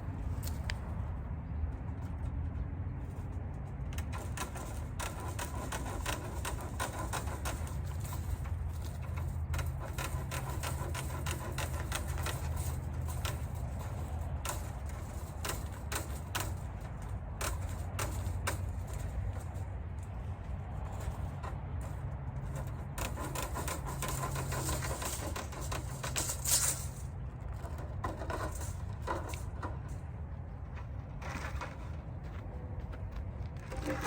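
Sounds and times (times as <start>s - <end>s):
snips cutting wire: 4.0s - 19.5s.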